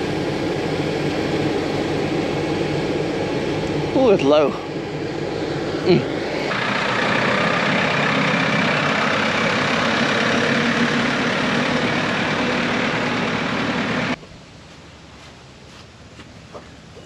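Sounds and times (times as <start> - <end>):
engine running steadily: 0.0 - 14.2.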